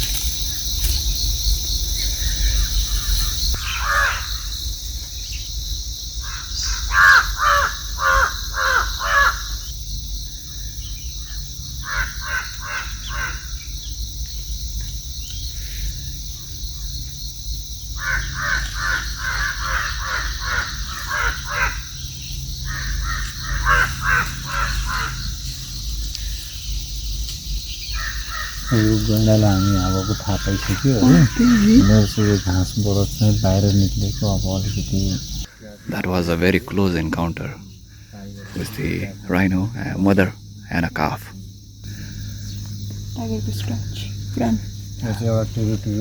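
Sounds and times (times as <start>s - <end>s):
birds cawing: 2.0s - 4.6s, 6.2s - 14.0s, 17.9s - 41.2s, 41.8s - 44.7s
steady high hiss: 25.2s - 41.4s.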